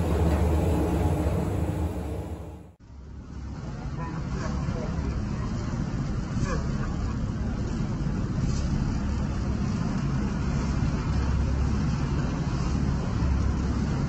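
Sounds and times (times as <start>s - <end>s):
ribbon blender rumbling: 0.0s - 2.7s.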